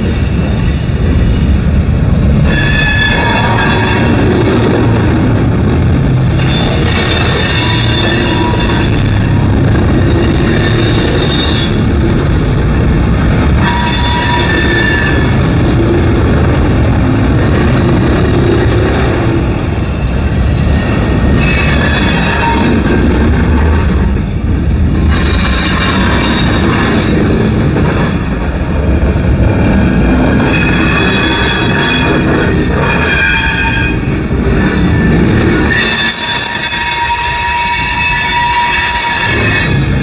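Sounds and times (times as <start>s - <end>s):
freight train wheels rumbling: 0.0s - 40.0s
high-pitched wheel squeal: 2.5s - 4.2s, 6.4s - 9.5s, 10.2s - 12.0s, 13.6s - 15.5s, 19.7s - 22.8s, 30.5s - 40.0s.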